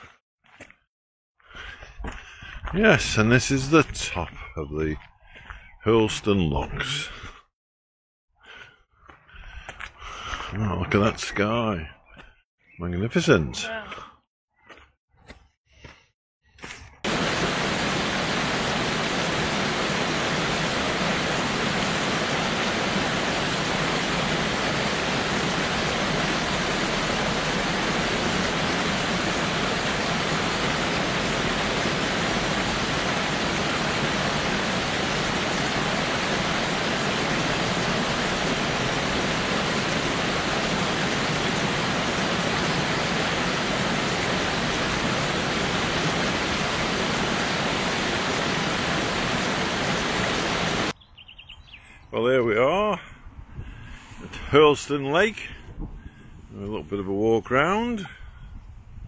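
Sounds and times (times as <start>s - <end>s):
water rushing: 17.0s - 51.0s.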